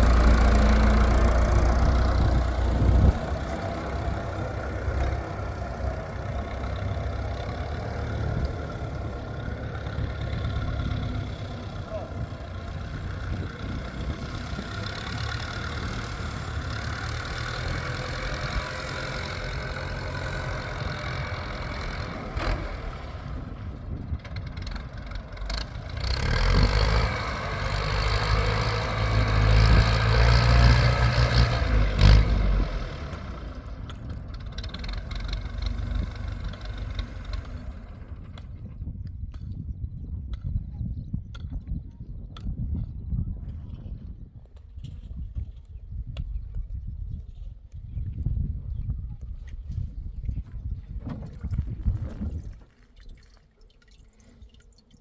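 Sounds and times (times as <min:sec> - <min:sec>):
engine running: 0:00.0 - 0:38.9.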